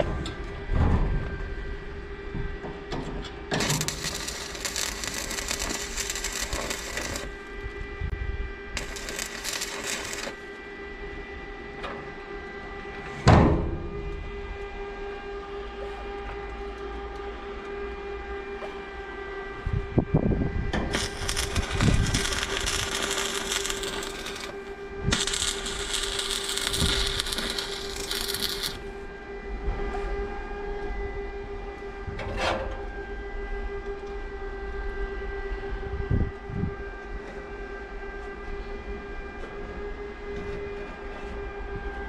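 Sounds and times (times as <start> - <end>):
steady hum: 0.0 - 32.2
welding arc crackling: 3.5 - 7.6, 8.8 - 10.6, 20.8 - 28.9.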